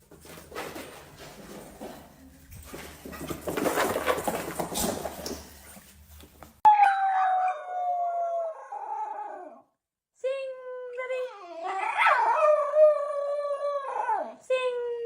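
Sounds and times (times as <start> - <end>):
dog howling: 6.7 - 9.6.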